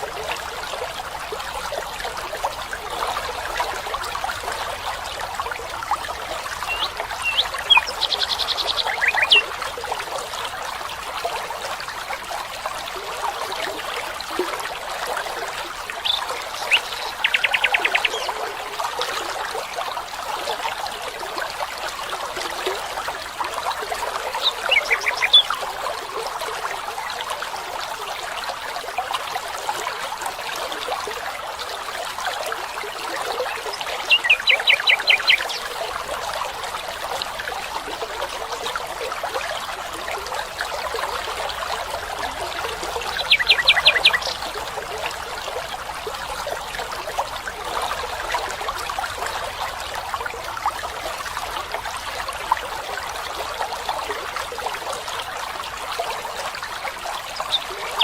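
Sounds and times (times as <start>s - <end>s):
stream trickling and babbling: 0.0s - 58.0s
songbird trilling and chirping: 6.7s - 9.4s, 43.2s - 44.4s.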